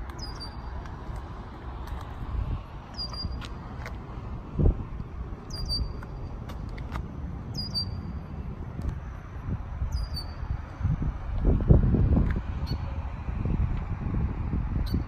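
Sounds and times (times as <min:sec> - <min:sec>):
bird chirping: 0:00.2 - 0:00.7, 0:02.9 - 0:03.4, 0:05.5 - 0:06.0, 0:07.5 - 0:08.1, 0:09.9 - 0:10.4.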